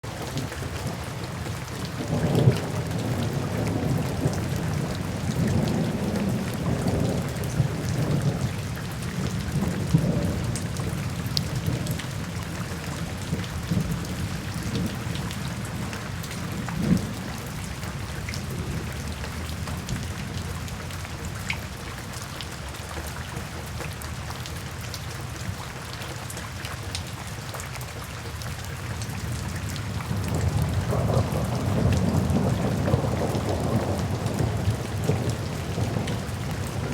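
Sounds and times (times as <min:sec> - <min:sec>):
steady rain: 0:00.0 - 0:36.9
rolling thunder rumbles: 0:00.4 - 0:21.1, 0:29.1 - 0:36.9.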